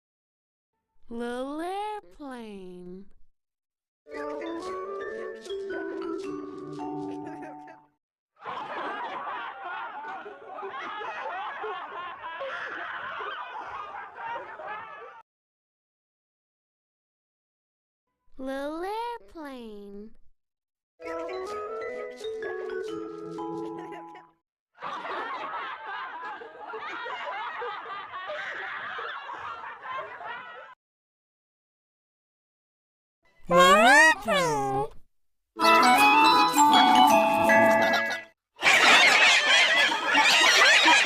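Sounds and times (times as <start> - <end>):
high-pitched voices giggling: 7.0 - 7.9, 23.4 - 24.3, 33.5 - 35.0, 37.5 - 41.0
people laughing together: 7.0 - 15.2, 23.4 - 30.8, 37.6 - 41.0.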